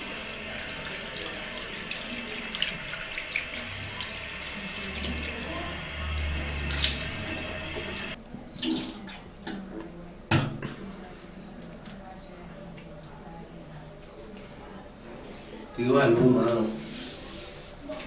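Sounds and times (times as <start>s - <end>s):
water running from a tap: 0.0s - 9.0s.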